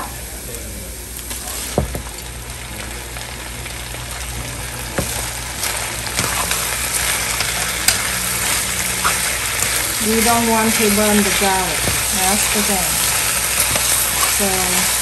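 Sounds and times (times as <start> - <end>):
vegetables sizzling in hot oil: 0.0 - 15.0
wooden utensil knocking on pan: 11.8 - 12.5.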